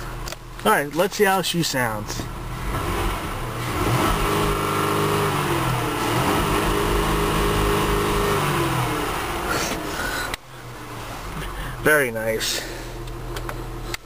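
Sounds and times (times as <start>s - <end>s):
car engine revving: 2.2s - 11.9s.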